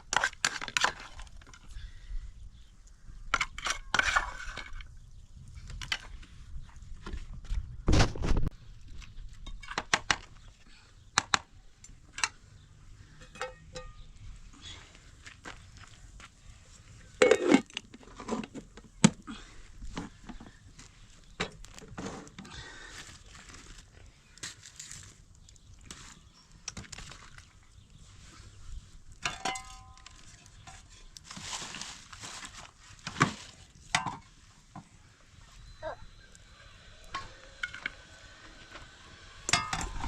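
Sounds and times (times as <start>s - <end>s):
clinks and knocks of cookware: 13.2s - 14.0s, 29.2s - 30.1s.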